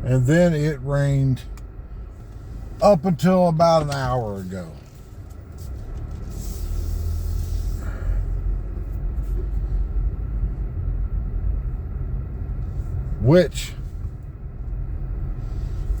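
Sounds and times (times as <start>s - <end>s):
car road rumble: 0.0s - 16.0s
hiss: 6.3s - 8.2s.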